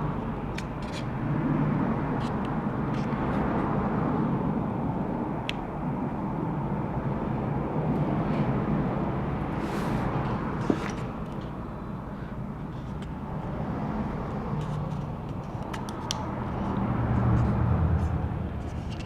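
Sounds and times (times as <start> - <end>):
small laptop parts clicking: 0.5 - 1.1, 14.6 - 16.3.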